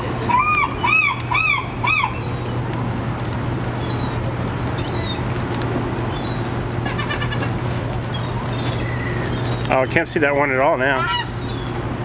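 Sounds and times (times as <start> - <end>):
city traffic hum: 0.0 - 12.0
seagull calls: 0.2 - 2.4, 6.1 - 9.7, 10.8 - 11.8.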